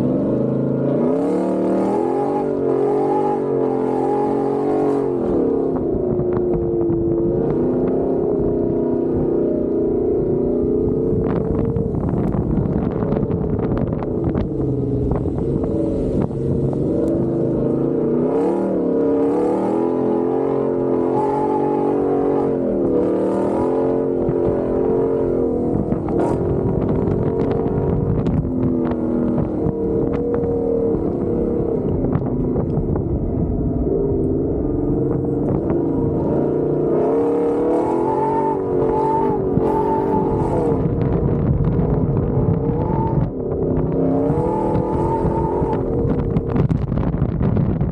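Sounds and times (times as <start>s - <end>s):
truck engine revving: 0.0s - 47.1s.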